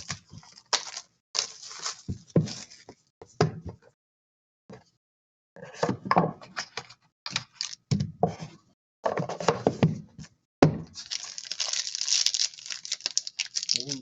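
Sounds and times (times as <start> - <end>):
cards and packaging rustling: 0.0 - 3.0, 7.3 - 7.9, 11.0 - 14.0.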